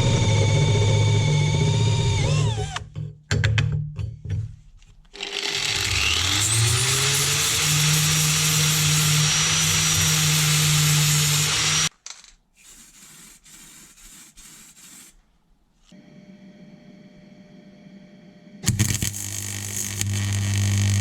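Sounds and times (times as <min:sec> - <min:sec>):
angle grinder grinding: 0:00.0 - 0:02.8, 0:05.2 - 0:11.9, 0:18.6 - 0:21.0.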